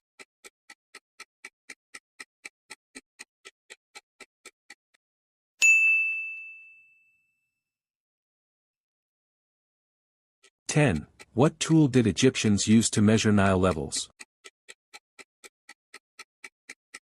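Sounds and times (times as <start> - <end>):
soft clock ticks: 0.0 - 5.0, 10.4 - 17.0
bright bell ding: 5.6 - 7.5.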